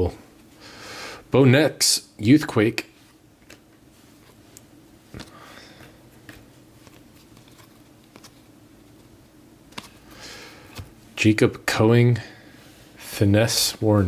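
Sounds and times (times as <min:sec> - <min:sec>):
low room hum: 0:00.0 - 0:14.0
cards rustling: 0:03.4 - 0:11.0.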